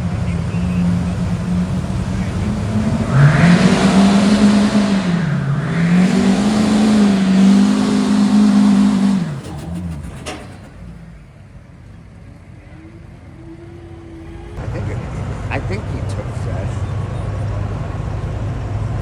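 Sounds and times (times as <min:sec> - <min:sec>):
diesel truck engine at full throttle: 0:00.0 - 0:19.0.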